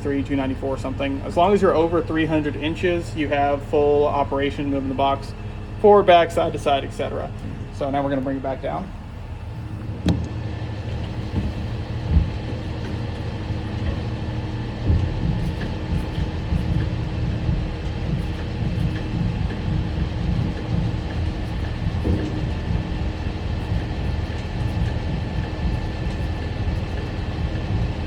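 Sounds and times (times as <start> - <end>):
diesel engine running: 0.0 - 28.0
dull knocks: 9.8 - 26.4.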